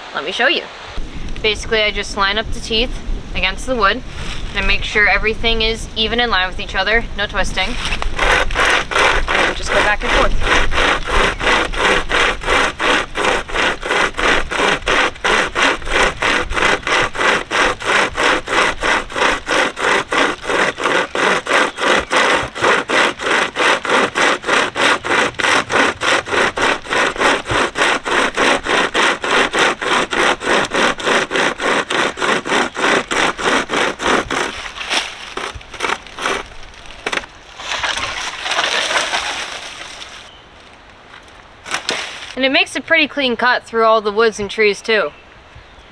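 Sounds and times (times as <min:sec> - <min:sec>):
saw chain rasping through wood: 0:07.6 - 0:40.3.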